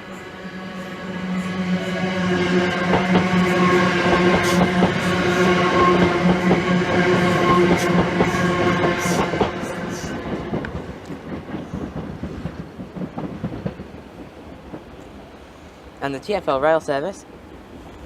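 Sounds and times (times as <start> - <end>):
train motor hum: 0.0 - 14.0
wheels clicking over rail joints: 10.2 - 15.2.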